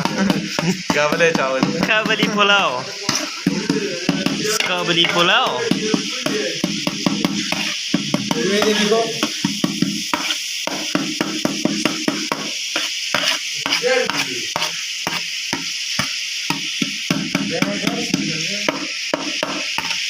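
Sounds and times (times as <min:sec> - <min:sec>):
food sizzling in oil: 0:00.0 - 0:20.0
metal ladle scraping a pot: 0:02.9 - 0:10.4, 0:12.3 - 0:15.2.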